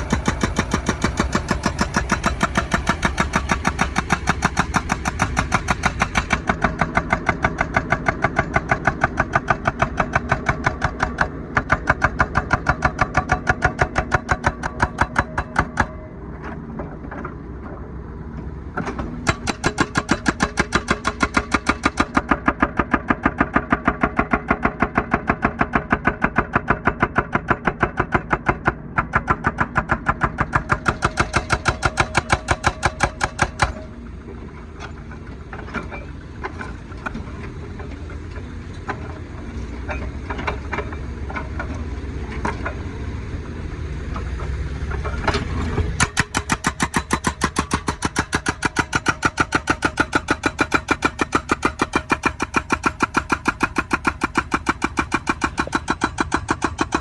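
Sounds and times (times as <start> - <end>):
hydraulic breaker hammering asphalt: 0.0 - 16.0, 18.8 - 33.9, 45.9 - 57.0.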